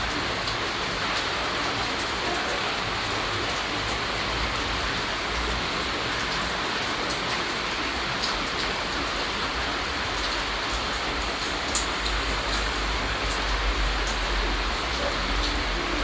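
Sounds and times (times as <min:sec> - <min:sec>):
raindrops ticking: 0:00.0 - 0:16.0
steady rainfall: 0:00.0 - 0:16.0.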